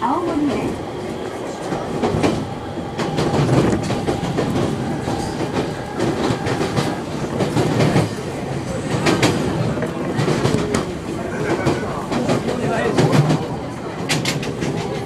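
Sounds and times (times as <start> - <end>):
train rumble inside carriage: 0.0 - 15.0
wheels clacking over rail joints: 3.0 - 15.0.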